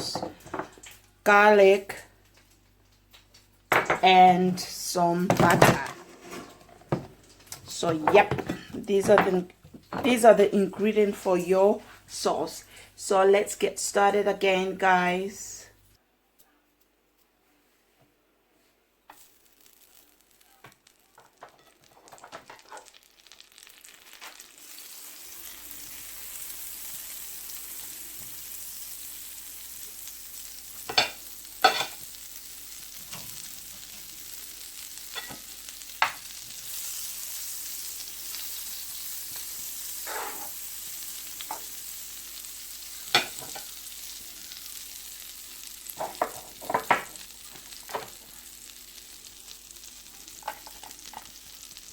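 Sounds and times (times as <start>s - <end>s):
frying sizzle in pan: 0.0s - 15.6s, 19.1s - 51.9s.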